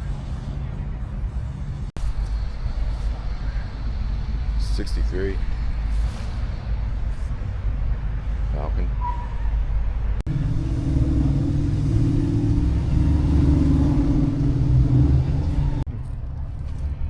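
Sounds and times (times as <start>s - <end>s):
car engine running: 10.3s - 15.9s.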